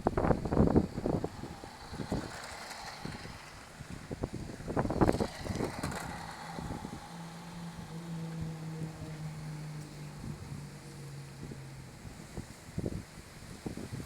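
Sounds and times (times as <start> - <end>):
low hum: 0.0 - 13.6
toy car driving past: 0.0 - 14.0
wind rumble on microphone: 0.0 - 14.0.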